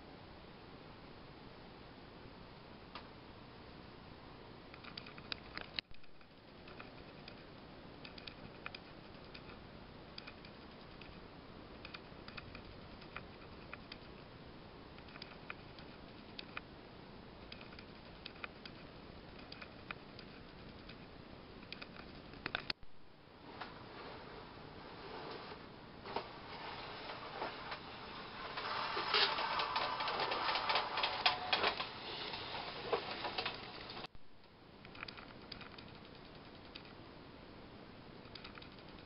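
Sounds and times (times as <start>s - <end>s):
mechanical clicking and ticking: 17.4s - 22.8s, 34.8s - 37.0s, 38.2s - 39.0s
steady hiss: 23.1s - 34.9s.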